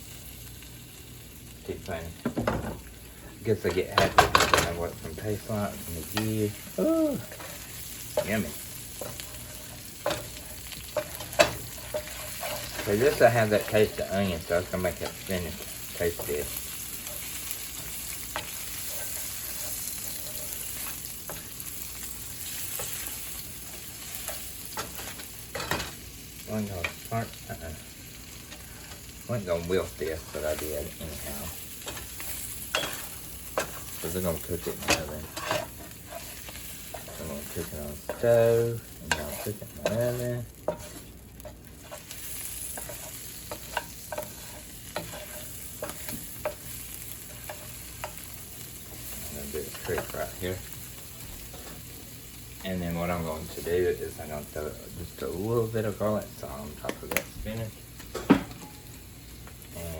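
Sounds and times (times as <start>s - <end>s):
spinach sizzling in a frying pan: 0.0s - 59.9s
utensil clicking and scraping pan: 7.3s - 14.0s, 14.9s - 25.8s, 31.8s - 38.4s, 39.0s - 50.4s.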